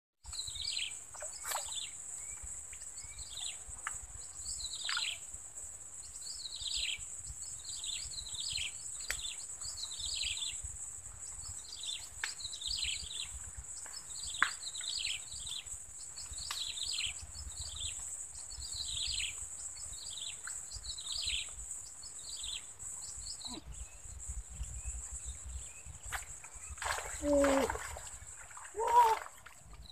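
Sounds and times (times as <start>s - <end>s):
birds chirping: 11.2s - 29.9s.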